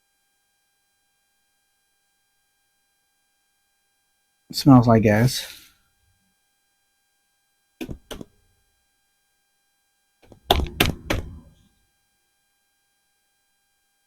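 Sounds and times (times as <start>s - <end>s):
parts set down with thunks: 7.8s - 8.2s, 10.2s - 11.6s
light knocks: 10.2s - 11.6s.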